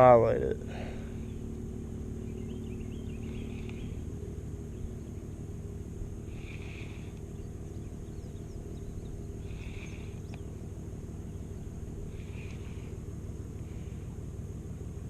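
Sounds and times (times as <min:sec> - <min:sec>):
low rumble: 0:00.0 - 0:15.0
faint bird chirps: 0:00.8 - 0:14.3.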